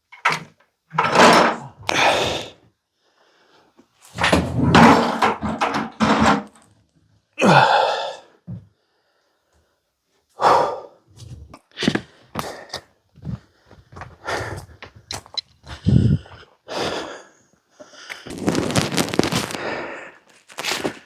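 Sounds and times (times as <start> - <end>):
loud thunks and clattering: 4.2 - 6.6.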